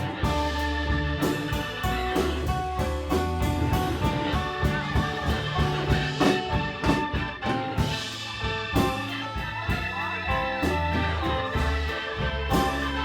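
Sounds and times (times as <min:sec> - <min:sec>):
deep bass line: 0:00.0 - 0:13.0
drum hits: 0:00.0 - 0:13.0
guitar: 0:00.0 - 0:13.0.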